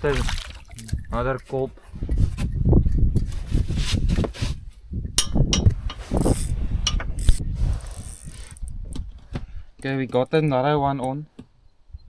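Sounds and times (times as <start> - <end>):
fishing reel ratcheting clicks: 7.2 - 8.8.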